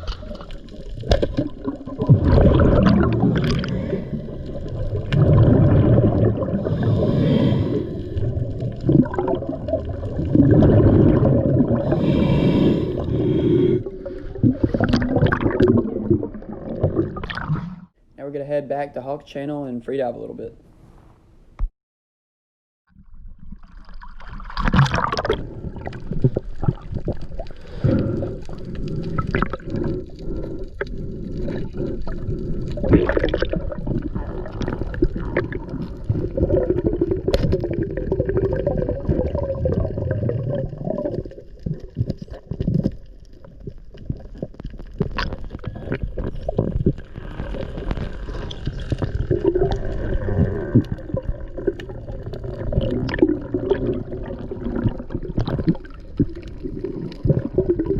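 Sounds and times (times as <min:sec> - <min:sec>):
water bubbling: 0:00.0 - 0:18.0, 0:23.2 - 0:57.9
water gurgling and sloshing: 0:00.0 - 0:18.0, 0:22.9 - 0:57.9
muffled underwater rumble: 0:25.2 - 0:57.9.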